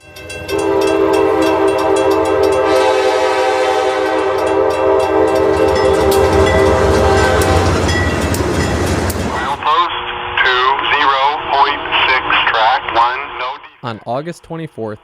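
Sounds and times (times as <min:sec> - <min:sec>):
train wheels clicking on rails: 0:00.0 - 0:03.1, 0:04.1 - 0:09.7
passing train rumble: 0:00.0 - 0:12.3
locomotive air horn: 0:00.4 - 0:08.2.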